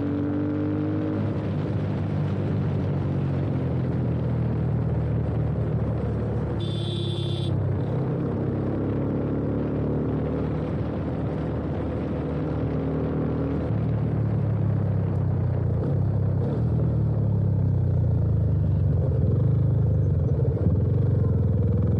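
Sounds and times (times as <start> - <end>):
motorcycle engine running: 4.6 - 8.7.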